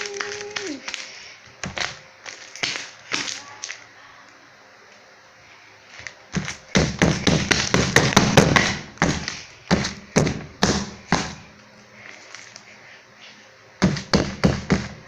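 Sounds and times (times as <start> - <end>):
sticky slime popping: 0.0 - 3.8.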